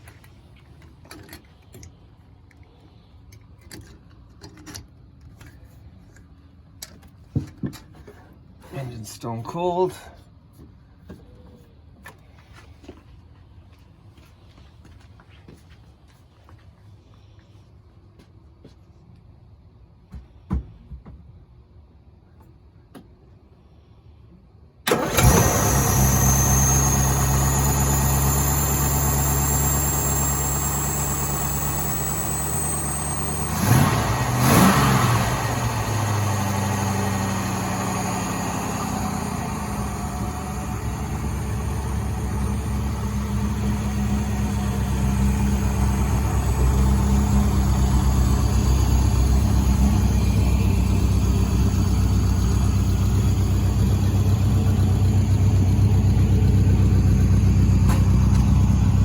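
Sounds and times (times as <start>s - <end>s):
car engine starting and idling: 24.8s - 59.0s
engine revving: 24.9s - 59.0s.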